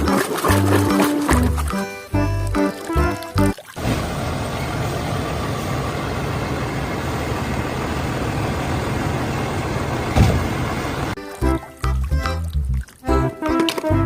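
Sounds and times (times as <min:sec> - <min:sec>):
heavy engine idling: 0:03.8 - 0:11.2.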